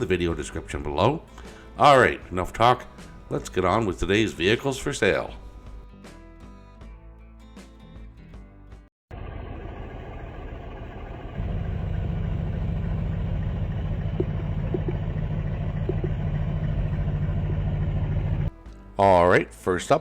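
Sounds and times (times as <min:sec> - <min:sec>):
car engine low rumble: 0:09.1 - 0:18.5.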